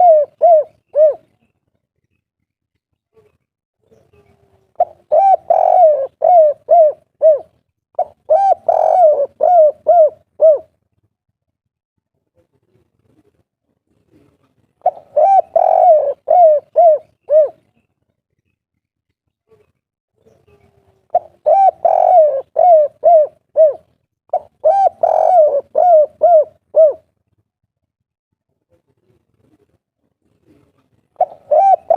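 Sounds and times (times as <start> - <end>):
dove cooing: 0.0 - 1.4, 4.6 - 10.7, 14.2 - 17.7, 20.6 - 27.1, 30.4 - 31.9.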